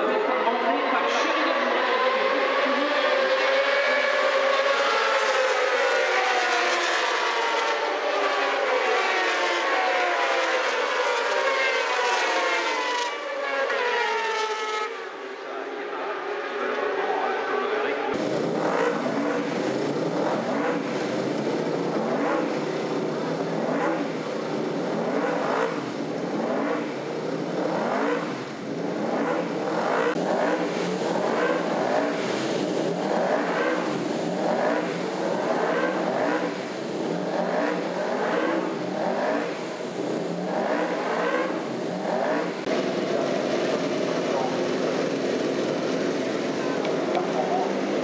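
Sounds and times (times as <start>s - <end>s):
racing motorcycle engines revving: 0.0s - 48.0s.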